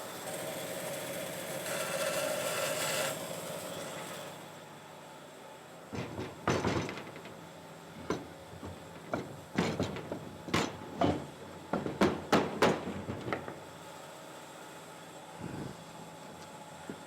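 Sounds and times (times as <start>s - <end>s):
wooden workpieces knocking on bench: 6.0s - 7.4s, 8.0s - 13.6s.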